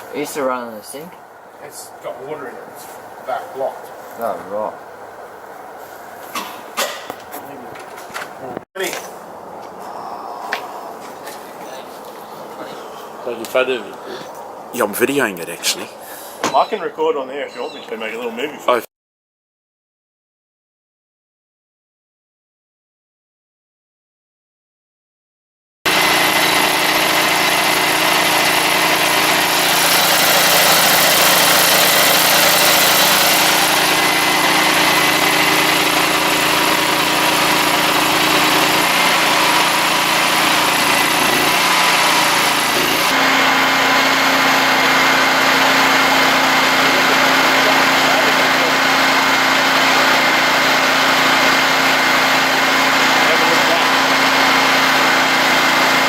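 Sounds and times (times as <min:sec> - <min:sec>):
engine running steadily: 0:25.9 - 0:56.0.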